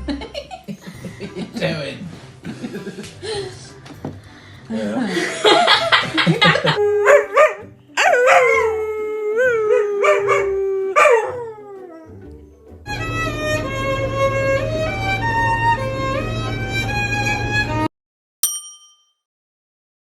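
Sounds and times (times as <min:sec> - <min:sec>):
dog howling and yelping: 0:06.7 - 0:12.2
slow violin melody: 0:12.9 - 0:17.9.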